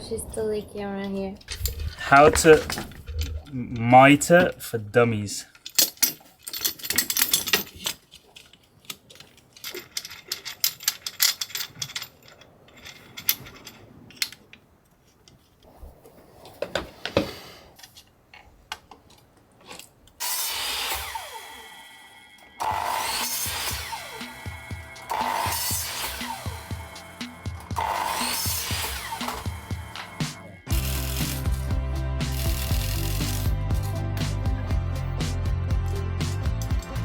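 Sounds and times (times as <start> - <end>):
woodworking tools clicking and knocking: 1.5 - 4.7, 5.5 - 15.5, 22.6 - 30.3
loud power tool running: 20.2 - 33.6.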